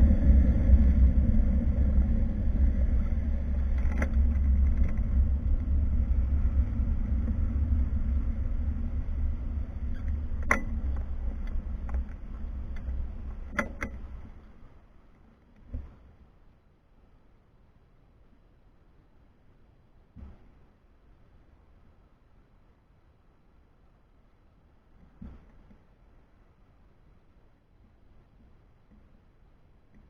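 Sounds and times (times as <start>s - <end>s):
wind buffeting microphone: 0.0s - 14.4s
bicycle tyre rumble: 0.0s - 14.7s.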